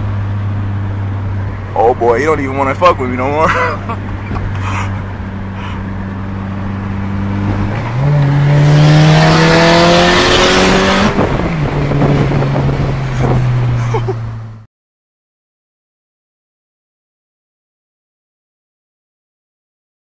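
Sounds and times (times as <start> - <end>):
car engine cruising: 0.0 - 14.7.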